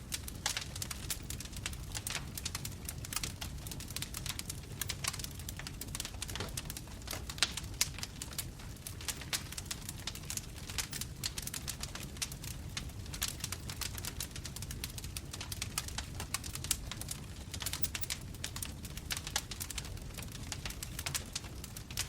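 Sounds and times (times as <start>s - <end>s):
fire crackles and pops: 0.0s - 22.0s
low rumble of flames: 0.0s - 22.0s.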